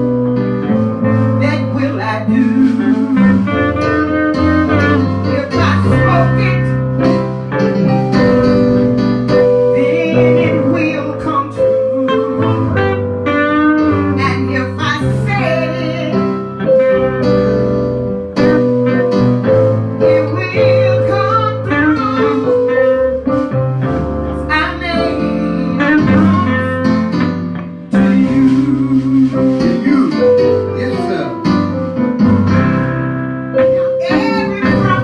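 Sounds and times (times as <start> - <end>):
guitar and keyboard accompaniment: 0.0 - 35.0
person singing gospel: 27.9 - 31.3.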